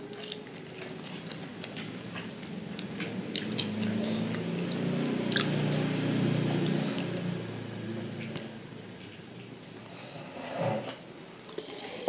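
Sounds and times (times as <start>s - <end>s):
chewing and biting chicken wing: 0.0s - 7.6s
low steady hum: 0.0s - 12.0s.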